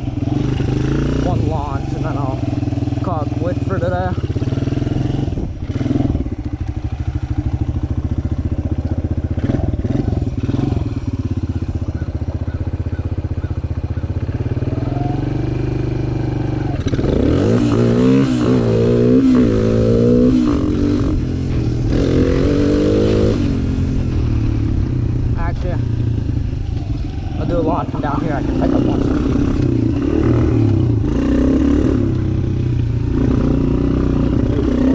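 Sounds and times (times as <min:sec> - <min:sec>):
dirt bike engine idling and revving: 0:00.0 - 0:34.9.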